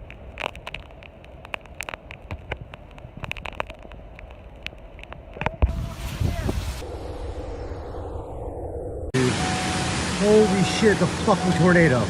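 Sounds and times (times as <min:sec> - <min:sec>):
sharp clicks and patters: 0:00.0 - 0:06.6
wind rumbling on microphone: 0:00.0 - 0:10.2.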